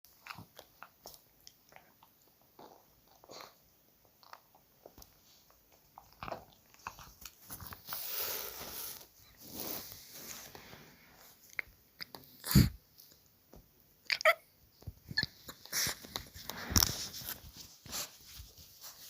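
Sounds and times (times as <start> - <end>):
puppy chewing and biting: 0.1 - 7.9.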